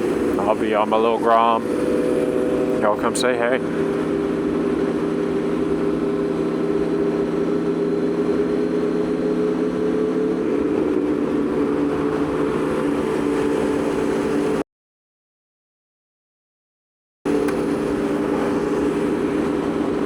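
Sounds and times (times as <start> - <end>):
motorcycle engine running: 0.0 - 14.6, 17.3 - 20.0
wind rush: 17.3 - 20.0.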